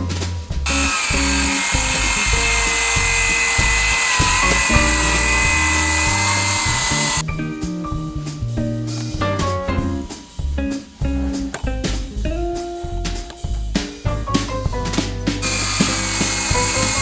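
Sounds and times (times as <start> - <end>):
background music: 0.0 - 17.0
circular saw cutting: 0.7 - 7.2, 15.4 - 17.0.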